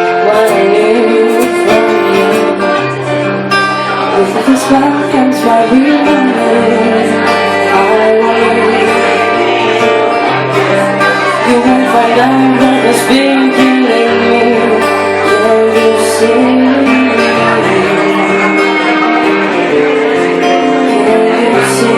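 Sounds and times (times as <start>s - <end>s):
woman singing: 0.0s - 2.9s, 4.1s - 9.9s, 11.0s - 18.8s, 20.4s - 21.9s
acoustic guitar: 0.0s - 21.9s.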